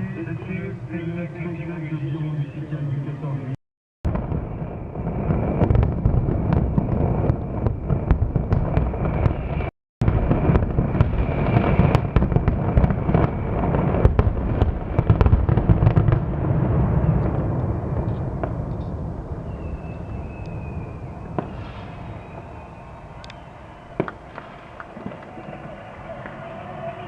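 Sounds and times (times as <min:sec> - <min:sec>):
fireworks booming and crackling: 0:04.0 - 0:27.0
deep rumble: 0:04.1 - 0:24.9.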